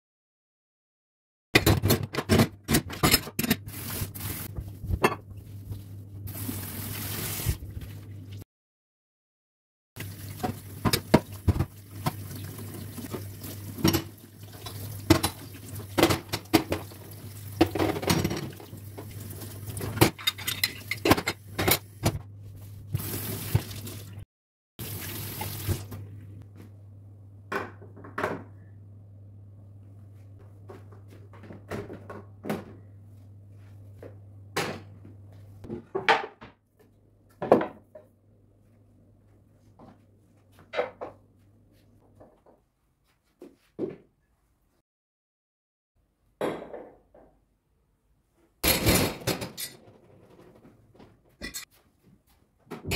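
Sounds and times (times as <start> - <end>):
dishes clinking and clattering: 13.8 - 16.9, 19.8 - 22.2, 48.6 - 50.5, 51.4 - 51.7.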